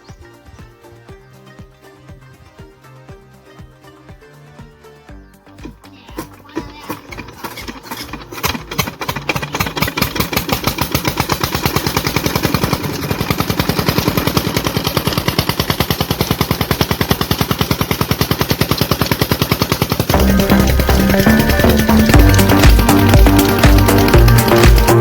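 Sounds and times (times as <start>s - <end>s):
stationary engine knocking: 5.5s - 25.0s.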